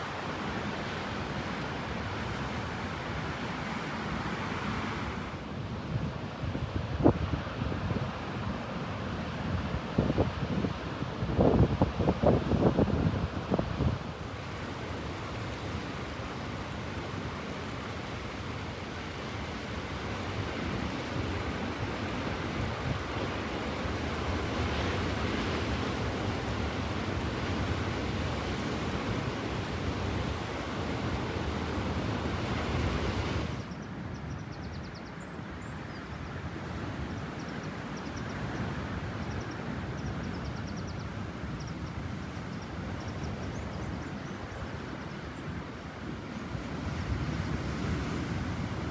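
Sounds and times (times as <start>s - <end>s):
wind rumble on microphone: 4.6s - 48.9s
sea waves breaking on shore: 13.9s - 33.8s.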